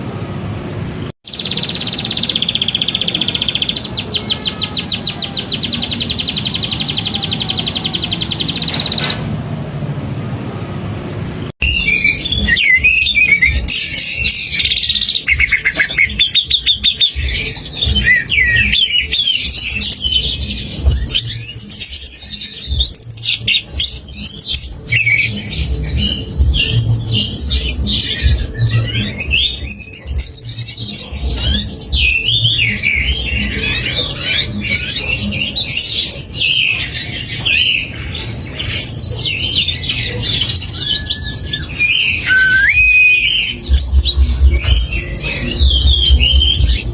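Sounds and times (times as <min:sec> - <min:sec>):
low pulsing beat: 0:09.6 - 0:33.6, 0:42.5 - 0:46.9
songbirds chattering and trilling: 0:11.6 - 0:46.9.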